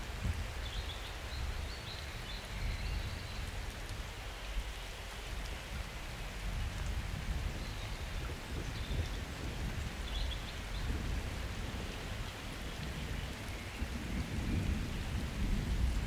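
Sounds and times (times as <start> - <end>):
rain falling: 0.0 - 16.0
low thunder rumbling: 6.5 - 16.0.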